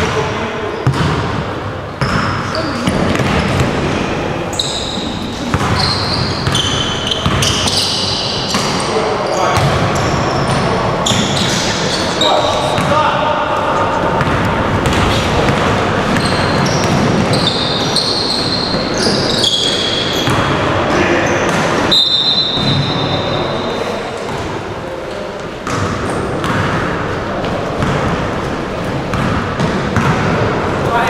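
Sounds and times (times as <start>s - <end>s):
ball bouncing: 2.0s - 3.8s, 5.4s - 7.8s, 14.1s - 17.6s, 25.6s - 30.4s
short high squeaks: 4.5s - 5.2s.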